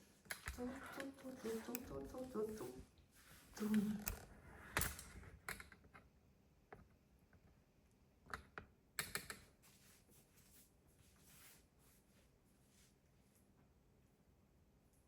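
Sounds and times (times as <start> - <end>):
faint clicks and taps: 0.2 - 2.8.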